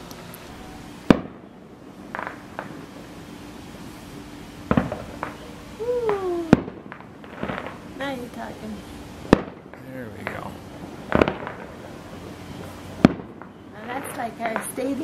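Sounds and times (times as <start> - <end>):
distant firework booms: 0.4 - 3.1, 4.6 - 5.5, 6.1 - 8.2, 9.2 - 14.9
firework pops and crackles: 1.1 - 1.4, 2.1 - 2.9, 4.7 - 8.0, 9.2 - 15.0.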